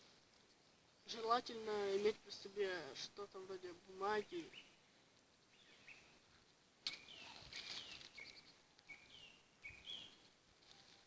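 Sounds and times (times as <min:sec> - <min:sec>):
songbird chirps and whistles: 0:05.5 - 0:06.2, 0:06.9 - 0:10.3.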